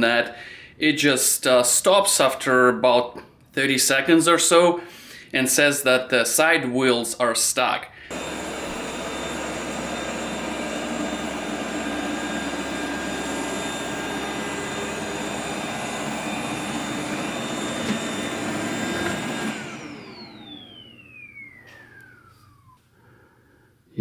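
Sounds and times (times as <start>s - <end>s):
motor spinning down: 8.1s - 22.9s
robot vacuum whining: 8.1s - 22.9s.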